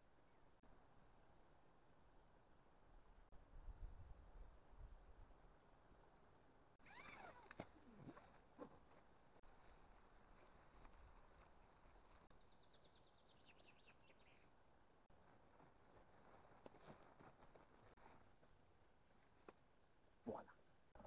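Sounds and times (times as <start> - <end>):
faint birdsong: 6.8 - 19.6.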